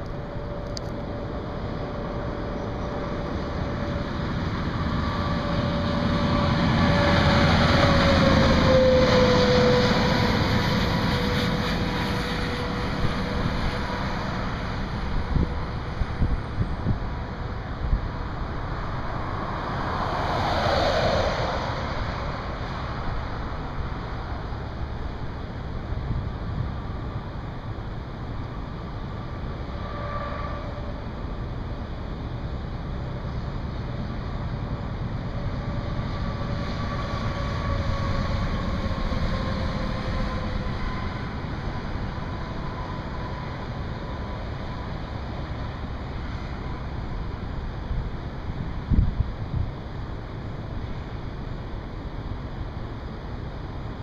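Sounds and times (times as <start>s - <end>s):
wind buffeting microphone: 0.0s - 19.7s, 34.4s - 50.0s
vehicle tyre noise: 0.0s - 27.4s
traffic: 0.0s - 54.0s.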